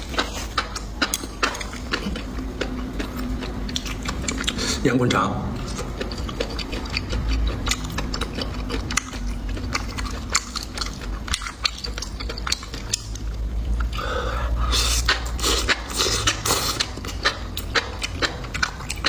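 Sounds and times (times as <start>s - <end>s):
chewing and biting: 0.0s - 14.0s, 14.6s - 19.0s.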